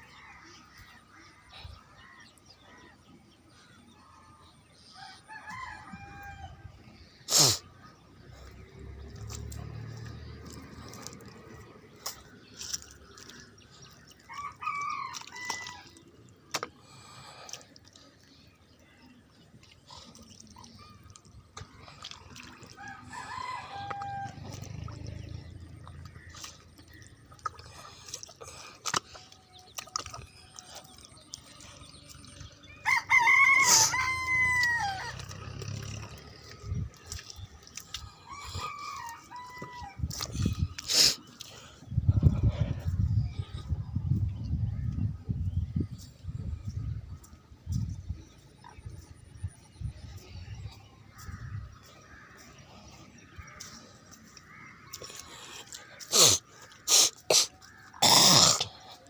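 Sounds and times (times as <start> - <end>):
distant rooster crowing: 5.0 - 6.8, 22.8 - 24.8, 32.8 - 35.2, 38.2 - 40.2.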